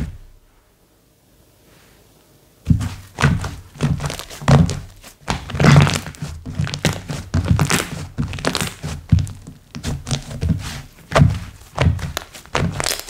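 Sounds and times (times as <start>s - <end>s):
hands squeezing sticky slime: 2.8s - 13.0s.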